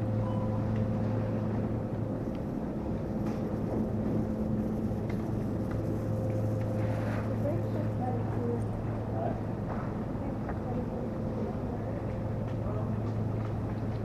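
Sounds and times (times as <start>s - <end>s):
faint higher tone: 0.0s - 1.4s
low mechanical hum: 0.0s - 14.0s.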